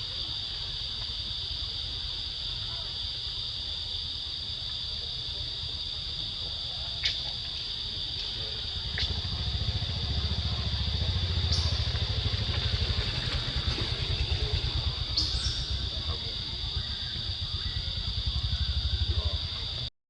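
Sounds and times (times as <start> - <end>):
high-pitched insect drone: 5.0 - 19.9
low throbbing rumble: 8.5 - 19.9.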